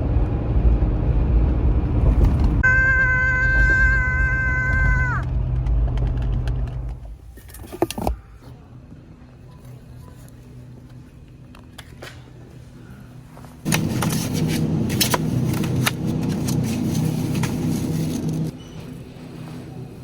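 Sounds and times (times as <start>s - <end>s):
vehicle engine and road rumble: 0.0s - 20.0s
rattles and clicks: 5.2s - 8.2s.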